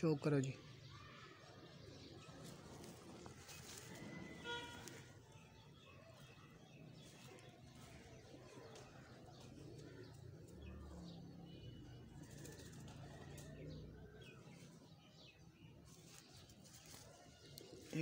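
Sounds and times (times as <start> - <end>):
pigeons cooing: 7.8 - 14.5.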